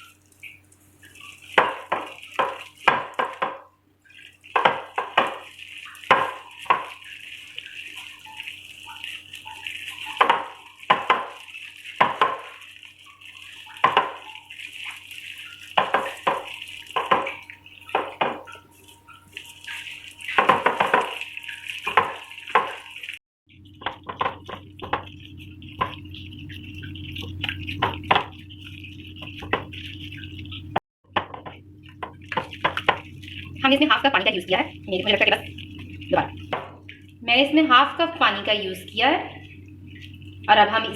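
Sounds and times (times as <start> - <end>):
wet scraping against a bowl: 4.1 - 30.8, 31.6 - 37.2, 38.0 - 40.9
low hum: 12.2 - 40.9.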